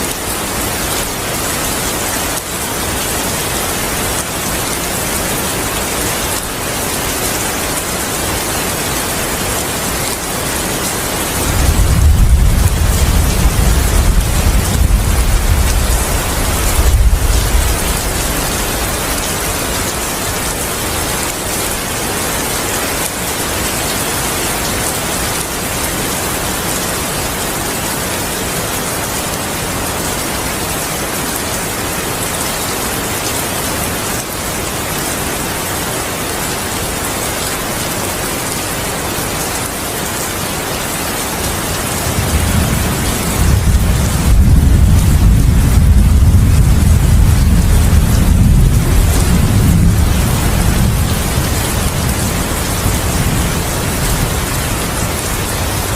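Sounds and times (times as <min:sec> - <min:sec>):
heavy rain falling: 0:00.0 - 0:55.9
thunder rumbling: 0:11.4 - 0:19.8, 0:42.0 - 0:55.9.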